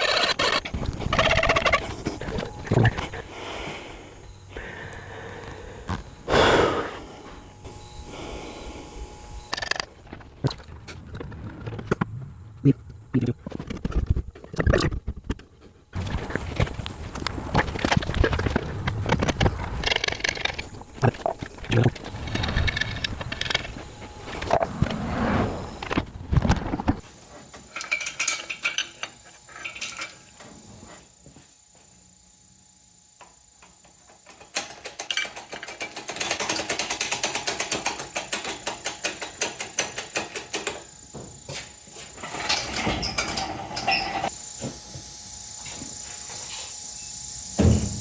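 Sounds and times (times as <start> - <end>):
metal tools clanking: 27.7 - 30.2, 42.2 - 44.3.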